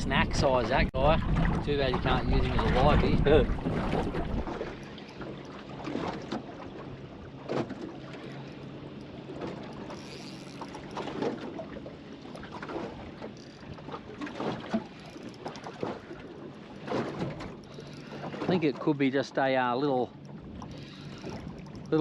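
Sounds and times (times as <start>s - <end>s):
wind buffeting microphone: 0.0s - 6.2s
waves slapping boat hull: 0.0s - 22.0s.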